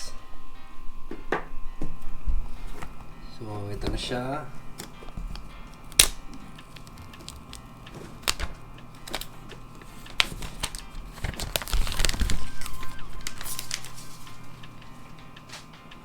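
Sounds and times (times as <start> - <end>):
faint background music: 0.0 - 16.0
packaging rustling and tearing: 4.7 - 14.8.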